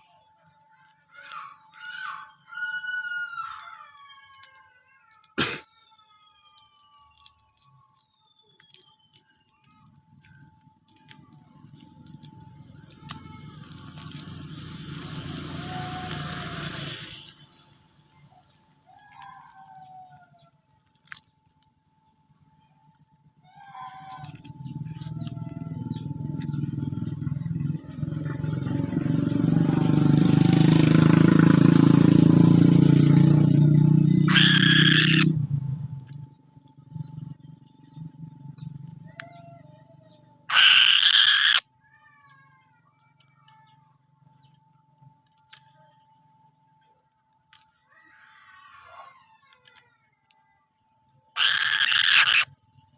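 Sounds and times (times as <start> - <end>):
faint bird chirps: 0.0 - 20.5, 34.2 - 52.9
vehicle engine hum passing: 8.7 - 41.6
loud harsh screeches: 12.8 - 17.6, 34.2 - 35.4, 40.5 - 41.6, 51.4 - 52.5.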